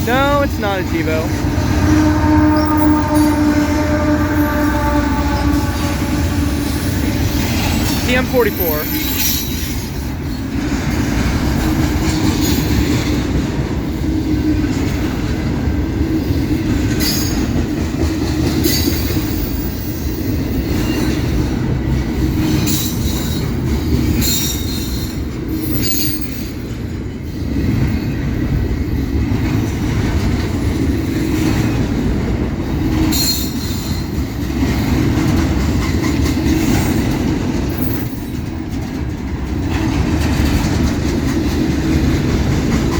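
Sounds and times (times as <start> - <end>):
freight train wheels rumbling: 0.0 - 42.9
train cars clanking: 0.0 - 42.9
wheel squeals: 2.0 - 3.6.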